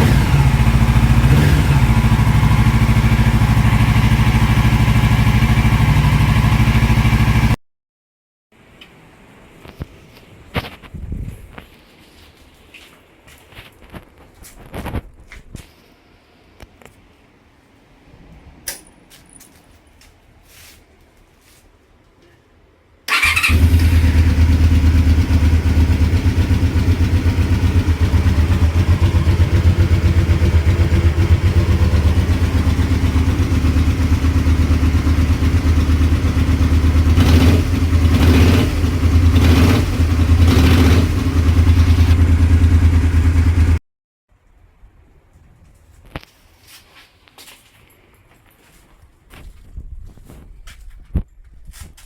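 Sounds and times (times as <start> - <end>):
motorcycle engine idling: 0.0 - 7.6, 23.1 - 43.8
motorcycle throttle blips: 23.1 - 43.8.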